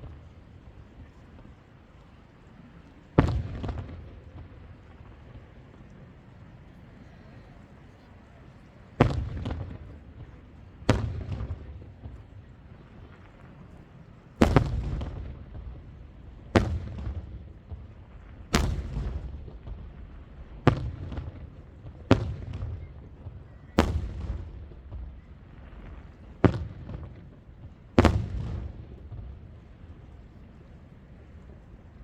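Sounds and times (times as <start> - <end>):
fireworks bursting with bangs: 3.0 - 6.1, 8.9 - 32.0
low rumbling echo: 8.6 - 30.6.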